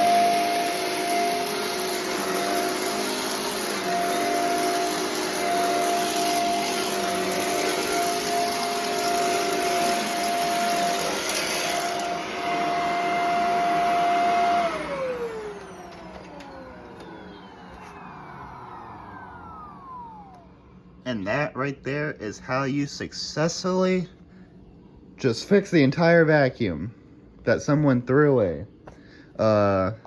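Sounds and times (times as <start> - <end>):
vacuum motor spinning down: 0.0 - 21.0
vacuum cleaner whining: 0.0 - 21.4.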